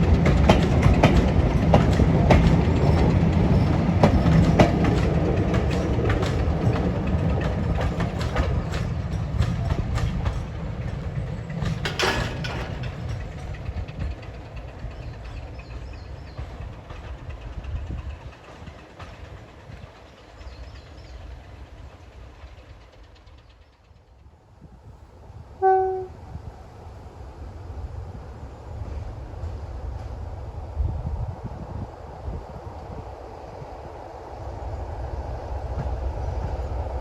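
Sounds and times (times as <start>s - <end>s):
wheels clicking over rail joints: 0.0s - 24.1s
diesel train engine rumble: 0.0s - 37.0s.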